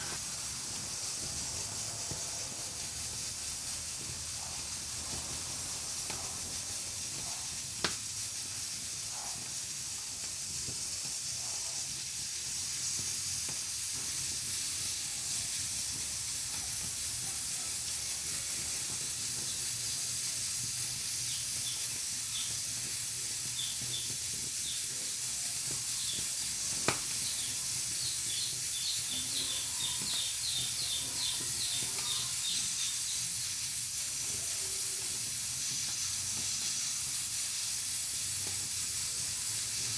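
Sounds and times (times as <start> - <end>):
pressure cooker steam hissing: 0.0 - 39.9
sharp pops: 7.8 - 8.1, 25.6 - 29.3.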